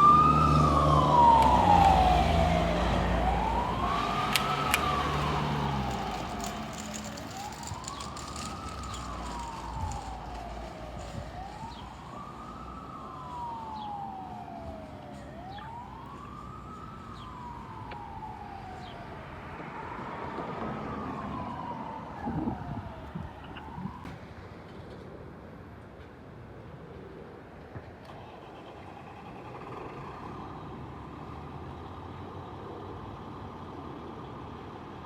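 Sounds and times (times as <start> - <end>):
low engine rumble: 0.0 - 14.0
fire truck siren wailing: 0.0 - 24.2.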